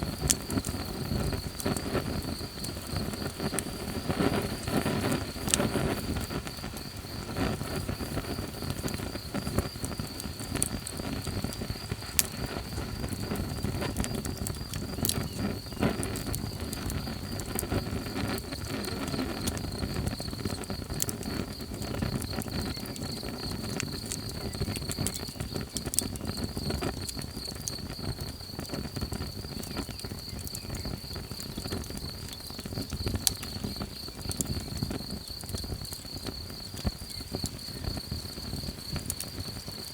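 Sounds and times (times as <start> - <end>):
campfire crackling and popping: 0.0 - 39.9
high insect trill: 0.0 - 39.9.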